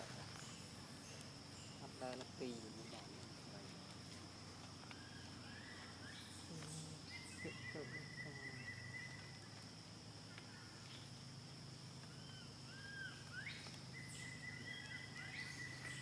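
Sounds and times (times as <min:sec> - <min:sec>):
high insect drone: 0:00.0 - 0:16.0
short chirping calls: 0:12.0 - 0:16.0.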